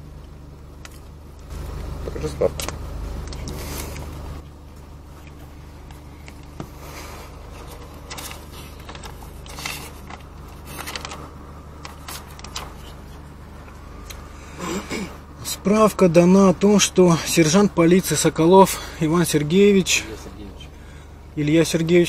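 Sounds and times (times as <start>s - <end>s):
car engine idling: 0.0s - 22.0s
paper rustling: 5.2s - 13.3s.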